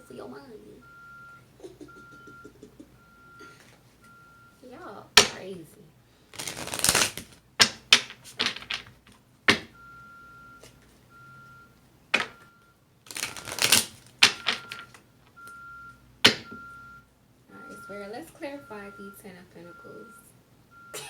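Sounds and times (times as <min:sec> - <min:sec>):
faint high beeps: 0:00.0 - 0:04.9, 0:09.8 - 0:11.7, 0:14.4 - 0:21.0
cards snapping and tapping: 0:05.2 - 0:05.4, 0:06.3 - 0:09.8, 0:12.2 - 0:12.4, 0:13.1 - 0:15.0, 0:16.3 - 0:16.6
cards riffling: 0:06.3 - 0:09.7, 0:13.1 - 0:15.0.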